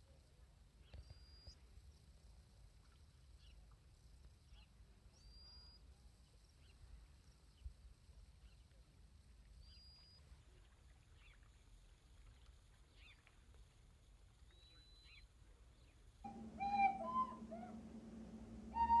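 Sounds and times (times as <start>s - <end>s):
steady low hum: 16.2s - 19.0s
short thin whistles: 16.3s - 19.0s
small bird chirps: 16.3s - 19.0s.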